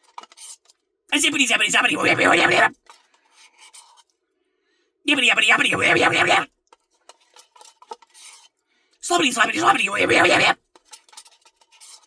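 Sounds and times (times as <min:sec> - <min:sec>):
person speaking loudly: 0:01.1 - 0:02.7, 0:05.1 - 0:06.5, 0:09.0 - 0:10.6.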